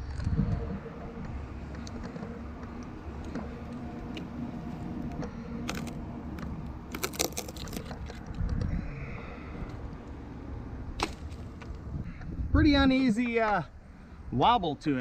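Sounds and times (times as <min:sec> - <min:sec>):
low handling rumble: 0:00.0 - 0:14.0
climbing gear clicks and rattles: 0:01.2 - 0:10.2.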